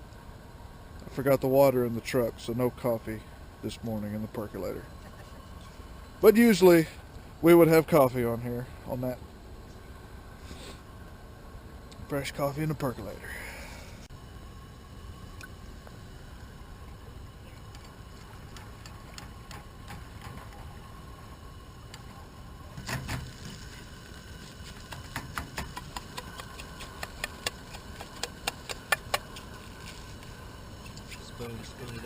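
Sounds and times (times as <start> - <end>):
sharp clicks and taps: 24.9 - 29.4.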